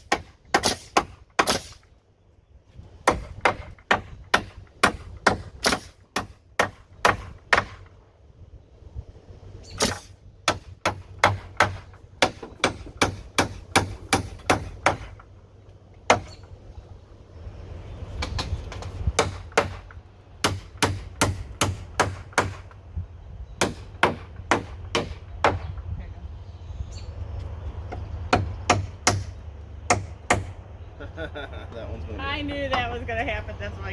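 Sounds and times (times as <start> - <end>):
nails hammered into wood: 0.0 - 1.9, 3.0 - 7.9, 9.8 - 15.2, 16.1 - 16.4, 18.3 - 22.8, 23.6 - 25.8, 28.3 - 30.6.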